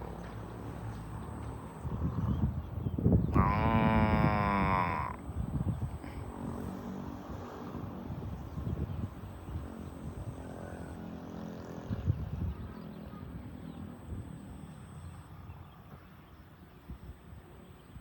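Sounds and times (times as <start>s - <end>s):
cattle mooing: 3.3s - 5.2s.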